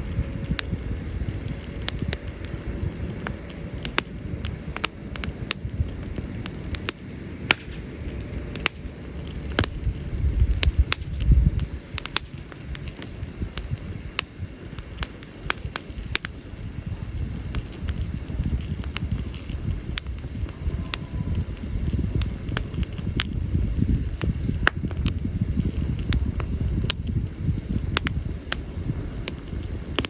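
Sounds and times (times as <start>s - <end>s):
campfire crackling and popping: 0.0s - 30.0s
low rumble: 0.0s - 30.0s.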